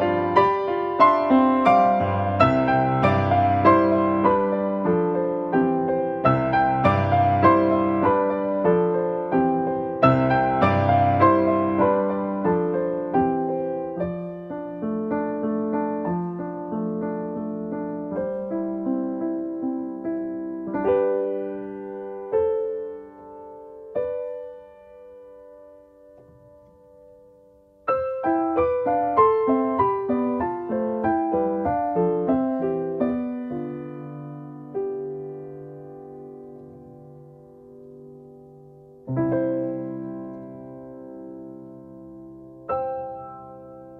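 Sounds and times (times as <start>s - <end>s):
slow gentle piano: 0.0s - 43.9s.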